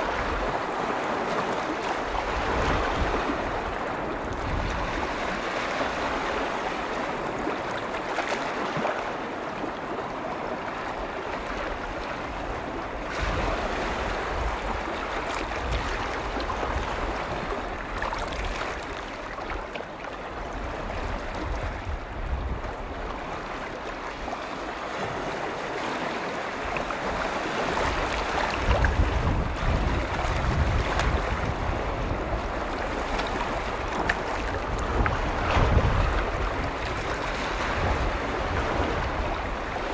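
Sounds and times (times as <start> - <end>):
lake waves lapping on shore: 0.0 - 39.9
wind rumbling on microphone: 0.0 - 39.9.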